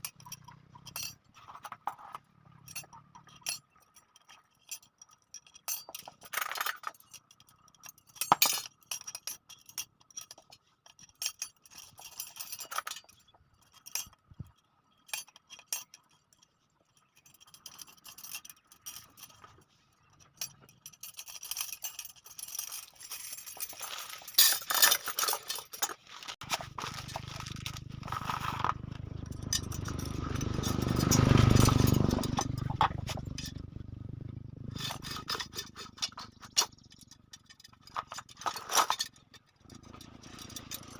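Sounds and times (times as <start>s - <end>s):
metal spokes clinking and scraping: 0.0s - 40.9s
low rumble: 26.4s - 35.1s.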